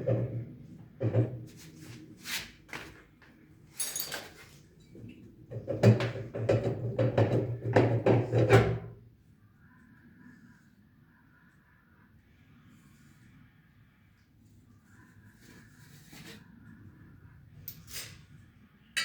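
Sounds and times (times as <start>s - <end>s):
metal parts and tools clattering: 3.7s - 4.6s.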